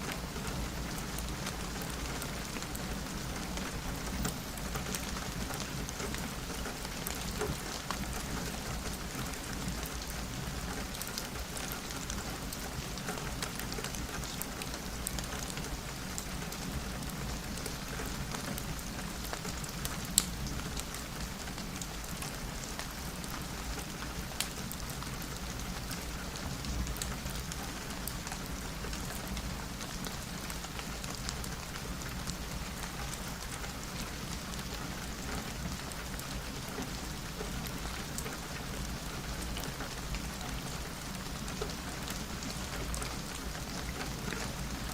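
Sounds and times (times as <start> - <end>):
rain on a window: 0.0 - 44.9.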